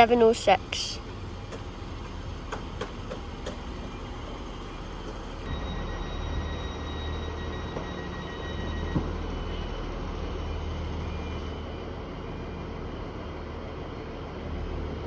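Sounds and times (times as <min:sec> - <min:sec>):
diesel train engine rumble: 0:00.0 - 0:15.0
high whine: 0:05.4 - 0:13.1.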